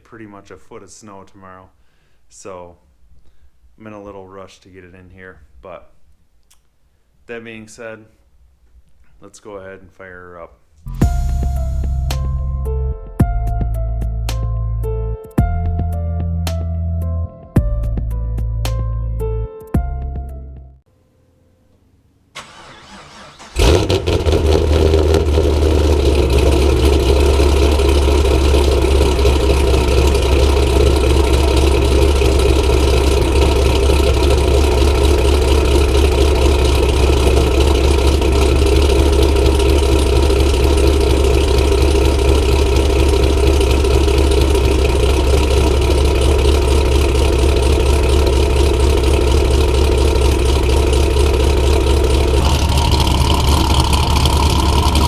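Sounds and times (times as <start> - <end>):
car engine idling: 22.4 - 55.0
car engine starting: 22.4 - 55.0.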